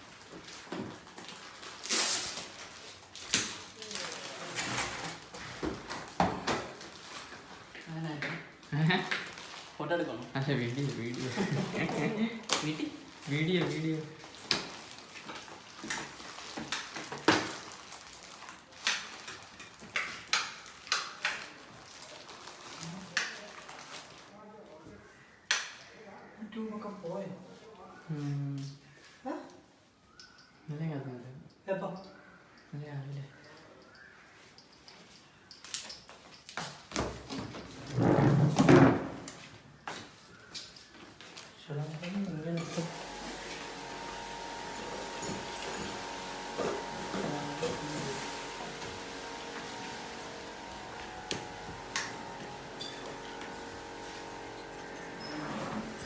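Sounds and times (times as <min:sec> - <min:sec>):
objects being moved and set down: 0:44.7 - 0:56.0.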